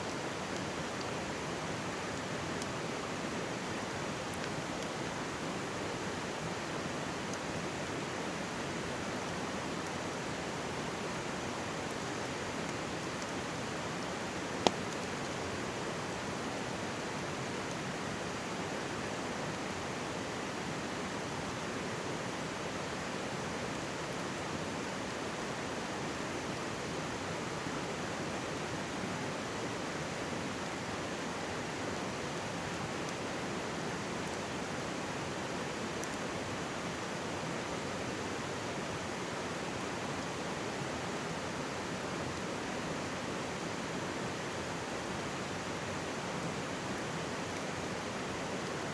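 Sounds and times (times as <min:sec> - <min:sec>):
faint campfire crackle: 0:00.0 - 0:48.9
stream babbling: 0:29.4 - 0:48.9.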